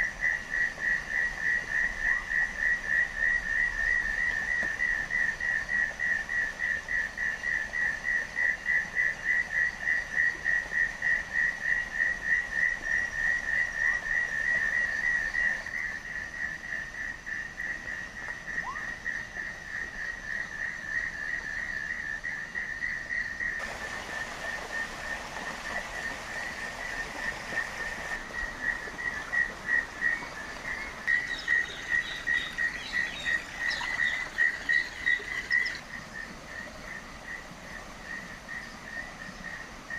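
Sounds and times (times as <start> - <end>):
steady hiss: 23.6 - 39.9.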